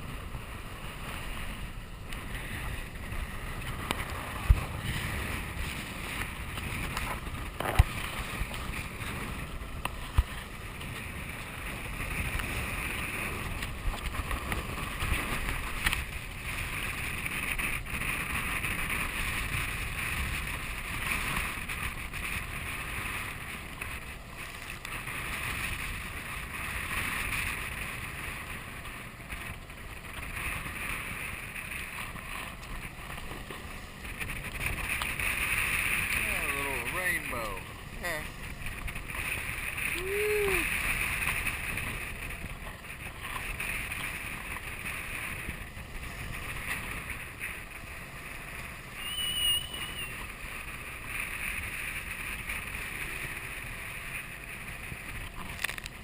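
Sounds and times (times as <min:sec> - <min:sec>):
wind buffeting microphone: 0:00.0 - 0:56.0
rushing water: 0:28.8 - 0:56.0.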